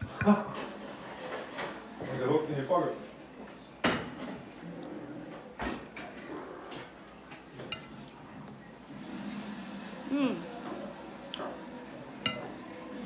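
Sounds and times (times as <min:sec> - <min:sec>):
cutlery clinking on a plate: 0:07.6 - 0:08.0, 0:12.2 - 0:12.6.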